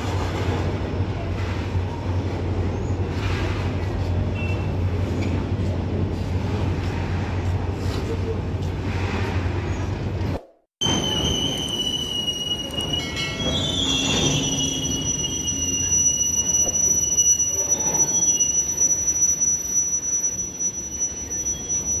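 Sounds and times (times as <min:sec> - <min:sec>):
train wheels rumbling on rail: 0:00.0 - 0:22.0
high wheel squeal: 0:10.8 - 0:22.0
lower wheel squeal: 0:10.8 - 0:22.0.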